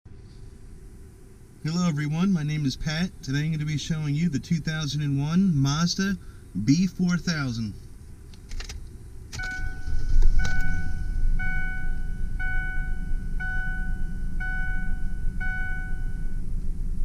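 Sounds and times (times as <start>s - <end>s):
car engine starting and idling: 0.1s - 17.0s
dashboard warning chime: 9.4s - 16.5s.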